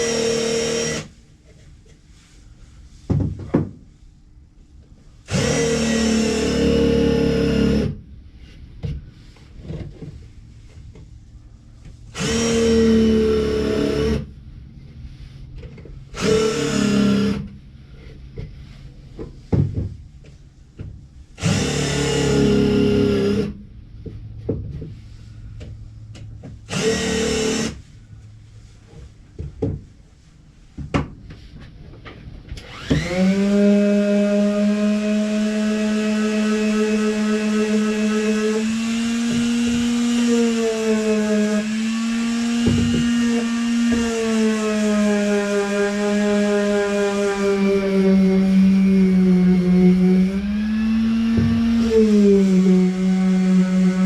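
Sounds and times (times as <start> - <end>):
power drill running: 0.0 - 1.1, 5.3 - 7.9, 12.2 - 14.2, 16.2 - 17.4, 21.4 - 23.5, 26.7 - 27.8, 32.6 - 35.5, 37.9 - 44.8.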